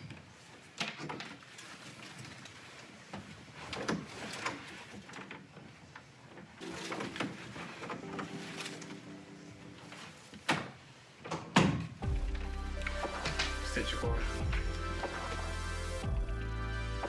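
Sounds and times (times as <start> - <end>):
steady low hum: 12.0 - 17.0.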